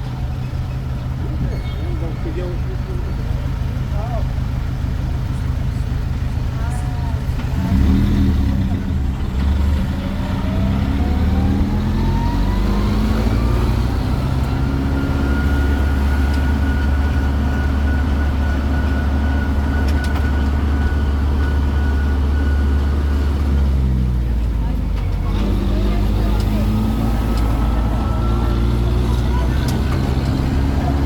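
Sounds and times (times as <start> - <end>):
engine droning: 0.0 - 31.0.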